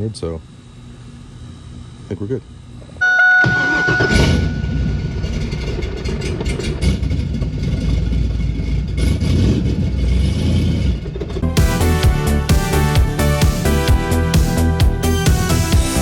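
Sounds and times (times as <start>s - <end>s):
steady high tone: 3.0s - 5.6s
car engine exhaust rumble: 3.0s - 11.9s
music: 11.4s - 16.0s.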